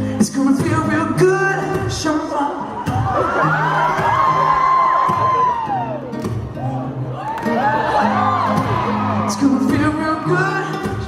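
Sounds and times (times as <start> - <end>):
live pop band playing: 0.0 - 11.0
audience cheering and whooping: 2.6 - 10.3.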